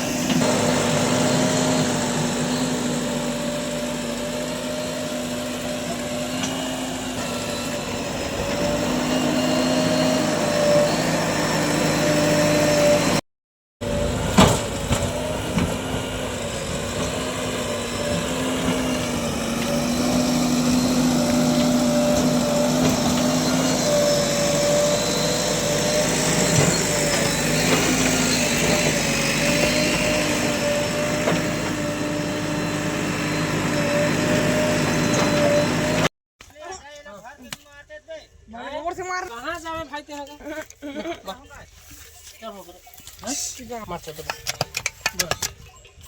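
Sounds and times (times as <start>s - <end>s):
diesel machinery engine running: 0.0s - 13.2s, 13.8s - 36.1s.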